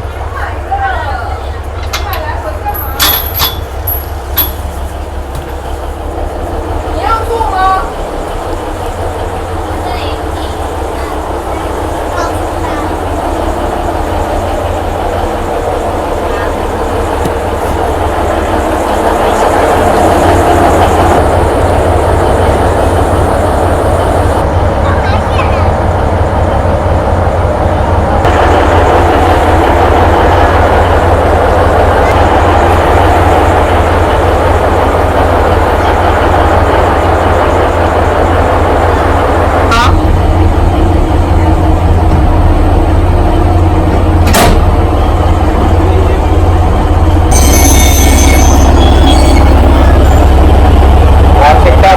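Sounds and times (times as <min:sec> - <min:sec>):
wheel-on-rail clatter: 0:00.0 - 0:05.8
train rumbling on track: 0:00.0 - 0:51.9.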